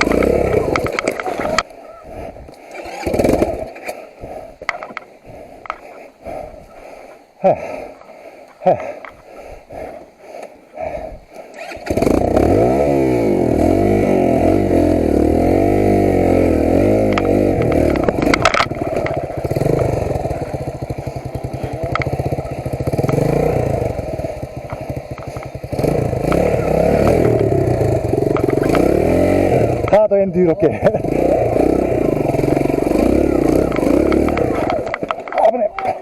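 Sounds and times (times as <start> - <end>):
motorcycle engine revving: 0.0 - 5.8, 11.5 - 36.0
heavy breathing: 0.1 - 11.7, 17.0 - 28.8.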